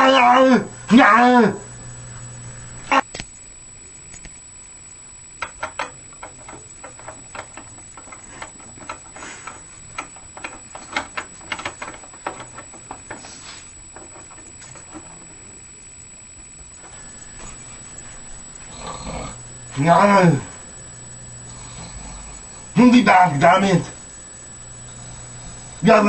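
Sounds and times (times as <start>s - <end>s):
irregular light clicks and taps: 5.4s - 13.3s
faint hiss: 13.1s - 14.0s, 14.9s - 26.0s.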